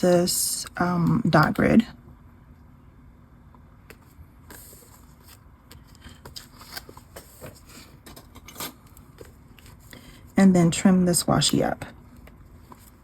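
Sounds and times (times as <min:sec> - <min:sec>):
paper tape rustling and crackling: 0:03.9 - 0:10.2.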